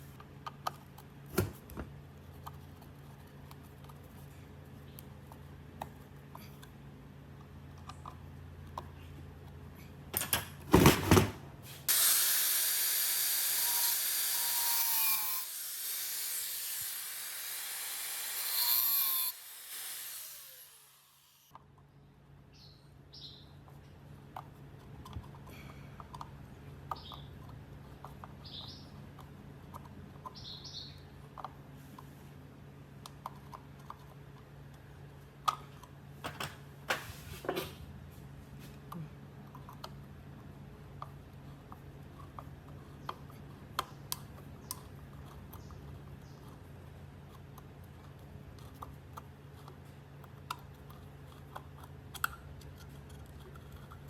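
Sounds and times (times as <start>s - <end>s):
power tool hissing: 11.8s - 21.5s
workshop clicks and taps: 35.4s - 37.8s.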